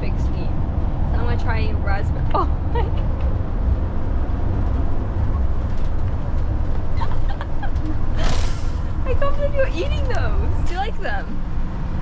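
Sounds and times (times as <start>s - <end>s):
car road noise rumble: 0.0s - 12.0s.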